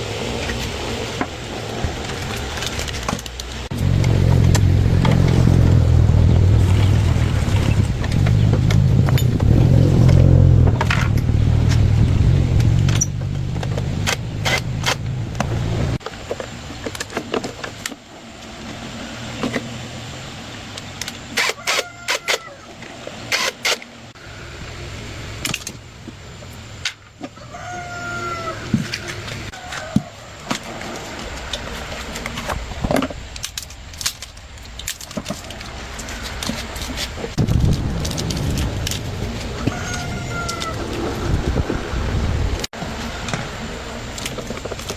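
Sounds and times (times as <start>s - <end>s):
motorcycle engine rumbling: 0.0s - 16.0s, 37.0s - 44.9s.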